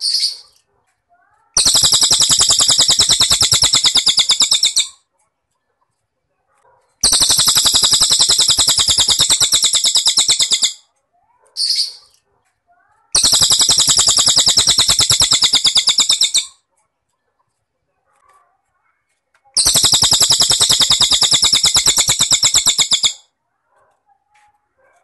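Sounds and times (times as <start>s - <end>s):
bird singing rapid trills: 1.5s - 5.0s, 7.0s - 10.8s, 13.2s - 16.5s, 19.6s - 23.2s.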